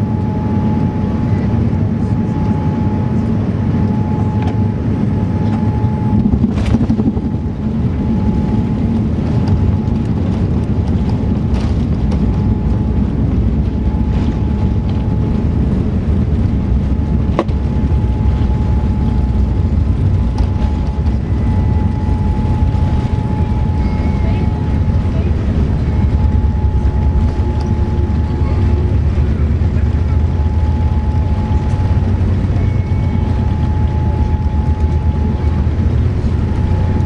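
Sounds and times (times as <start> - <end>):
airplane cabin engine rumble: 0.0 - 37.0
thin whine: 11.4 - 37.0.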